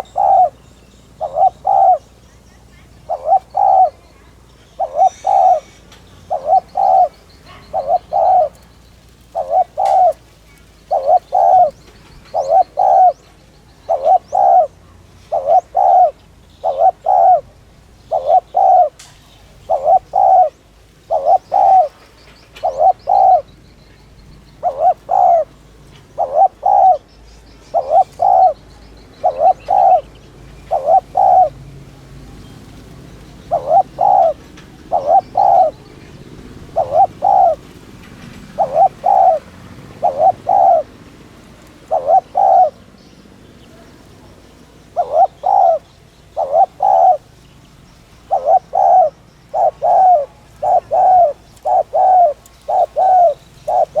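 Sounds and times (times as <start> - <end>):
dove cooing rapidly: 0.0 - 32.0, 32.8 - 54.0.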